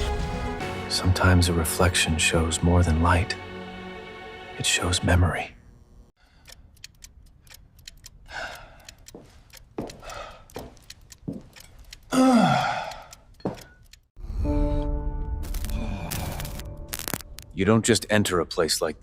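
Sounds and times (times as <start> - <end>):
sharp clicks and ticks: 6.1 - 14.2.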